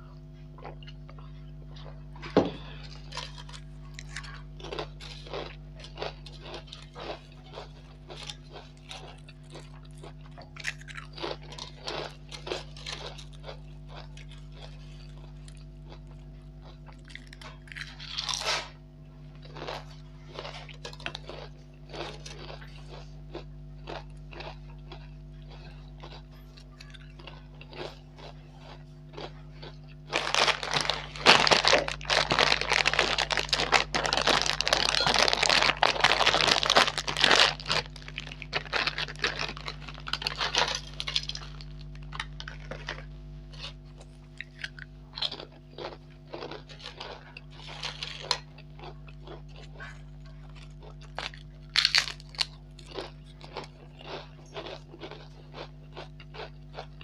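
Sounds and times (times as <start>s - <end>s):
crunching potato chips: 0.0s - 57.0s
low electrical hum: 0.0s - 57.0s.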